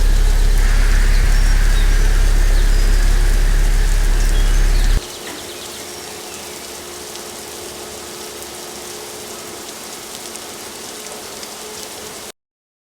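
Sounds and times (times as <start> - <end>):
faint steady hum: 0.0 - 5.0
water spray pattering on car: 0.0 - 12.3.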